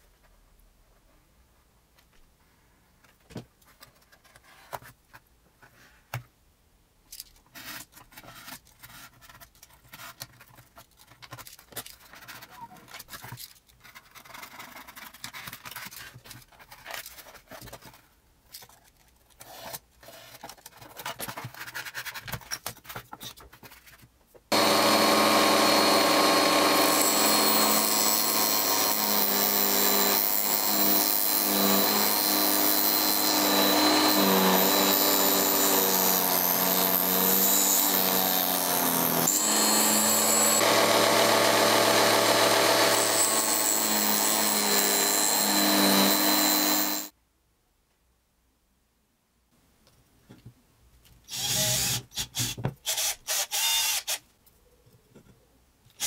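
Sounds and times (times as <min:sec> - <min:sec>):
electric scroll saw cutting plywood: 0:24.5 - 0:47.1
utility knife cutting foamboard: 0:24.5 - 0:47.1.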